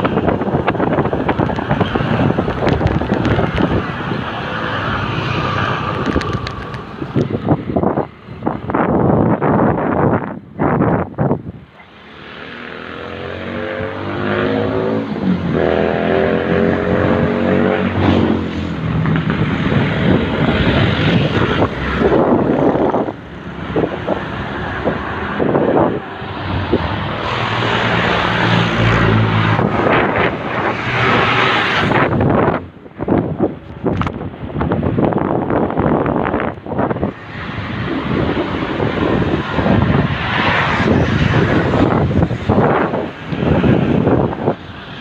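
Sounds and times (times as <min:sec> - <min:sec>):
wind rushing over microphone: 0:00.0 - 0:45.0.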